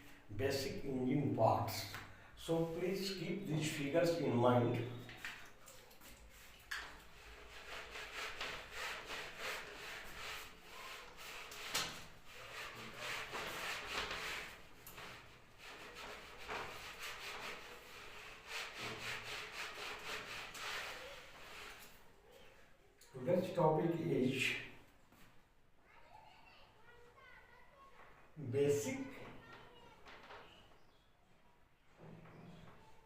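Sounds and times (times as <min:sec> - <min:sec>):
scratchy writing strokes on board: 0:06.3 - 0:22.0.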